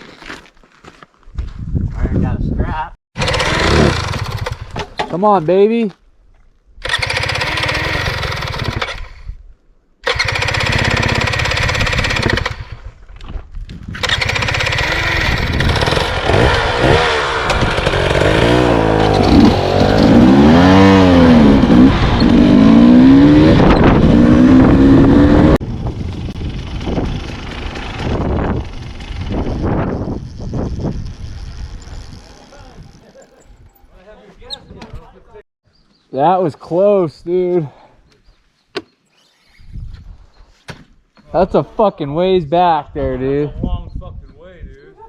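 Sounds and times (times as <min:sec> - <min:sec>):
dirt bike engine revving: 0:03.2 - 0:04.8, 0:06.8 - 0:09.3, 0:10.0 - 0:12.9, 0:14.0 - 0:33.2.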